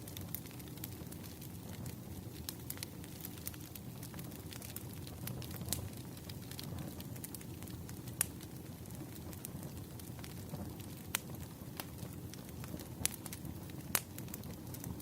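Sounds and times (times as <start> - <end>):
campfire low rush: 0.0 - 15.0
fire crackling and popping: 0.0 - 15.0.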